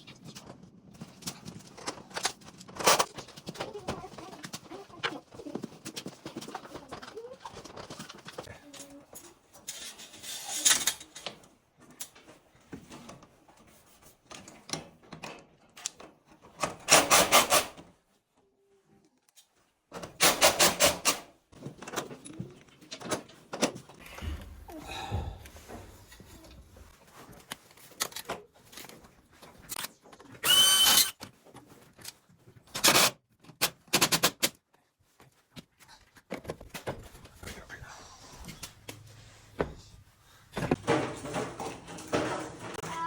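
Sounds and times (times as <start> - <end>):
handling and rubbing noises: 0.2 - 14.7, 21.6 - 30.4.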